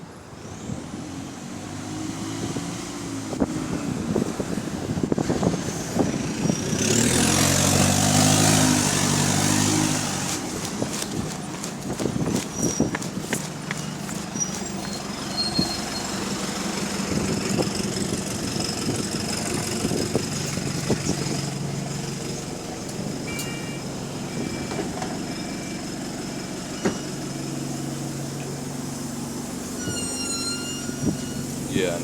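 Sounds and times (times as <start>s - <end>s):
bus diesel engine hum: 0.0s - 32.0s
brakes squeaking: 3.4s - 28.7s, 29.4s - 32.0s
bodywork rattles and knocks: 10.0s - 15.2s.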